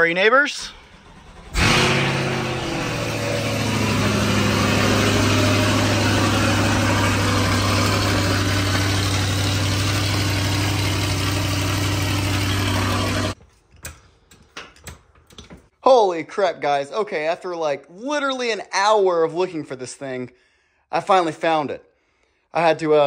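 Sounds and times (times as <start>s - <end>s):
car engine starting and idling: 0.5s - 13.4s.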